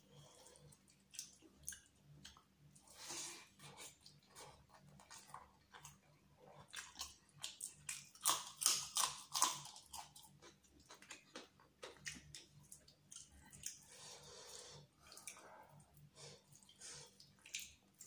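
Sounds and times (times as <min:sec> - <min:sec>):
wet chewing with clicks: 0:00.7 - 0:02.5, 0:03.8 - 0:13.9, 0:16.5 - 0:18.0
crunchy bites: 0:07.8 - 0:11.4.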